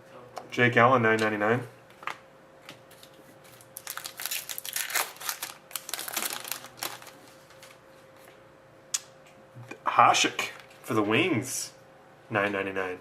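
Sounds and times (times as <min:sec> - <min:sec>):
plastic wrapper crinkling: 0:03.5 - 0:07.8.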